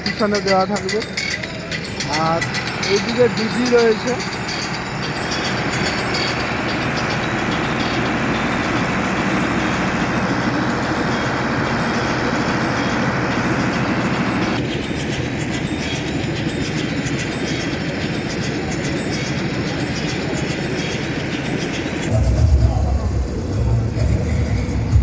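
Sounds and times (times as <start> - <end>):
loud distorted music with heavy bass: 22.1 - 25.0.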